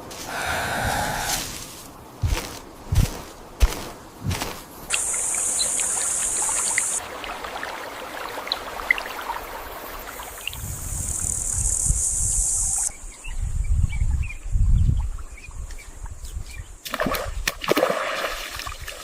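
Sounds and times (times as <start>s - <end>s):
high insect buzzing: 4.8s - 7.0s, 10.6s - 12.9s.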